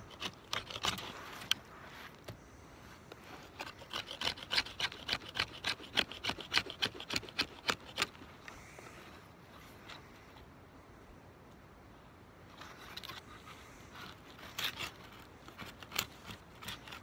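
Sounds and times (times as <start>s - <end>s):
knife blade shaving wood: 0.0s - 1.6s, 3.5s - 8.2s, 14.0s - 17.0s.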